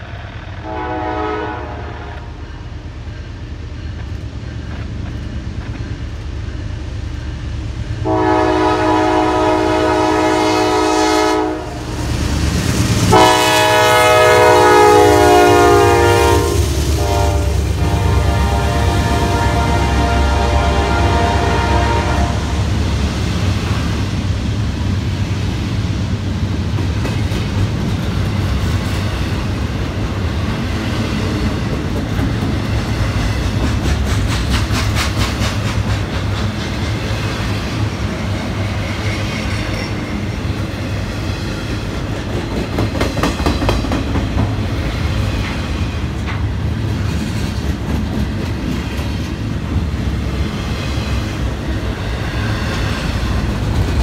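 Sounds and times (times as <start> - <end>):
train wheels rumbling on rail: 0.0 - 54.0
train horn note: 0.6 - 2.4, 8.0 - 11.9, 13.1 - 22.7
clickety-clack at rail joints: 3.0 - 8.1, 22.8 - 54.0.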